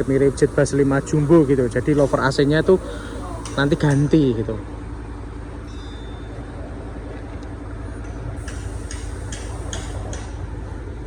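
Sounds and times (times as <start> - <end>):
low engine hum: 0.0 - 5.6
light sharp ticks: 3.4 - 4.1, 8.4 - 10.3.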